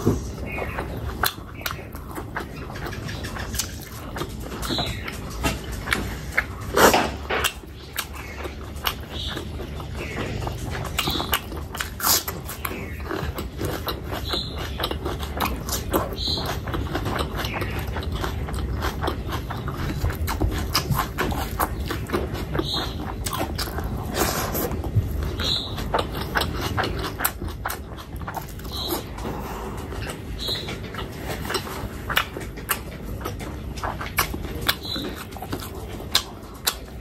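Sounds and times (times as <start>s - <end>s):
person chewing and mouth-smacking: 0.0s - 37.0s.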